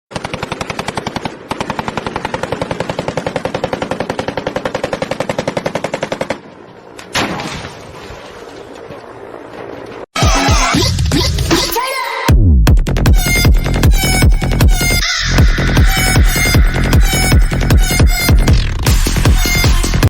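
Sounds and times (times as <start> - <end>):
rapid automatic gunfire: 0.1 - 6.4.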